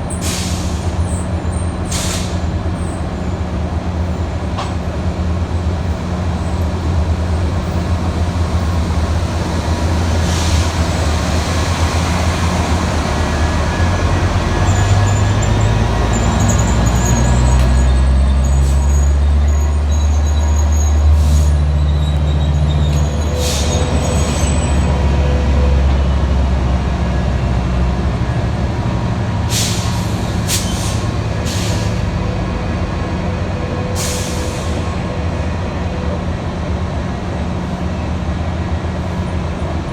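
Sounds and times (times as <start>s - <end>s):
diesel locomotive engine running: 0.0s - 39.9s
short air hisses: 0.2s - 1.0s, 1.9s - 2.4s, 29.5s - 32.0s, 34.0s - 34.9s.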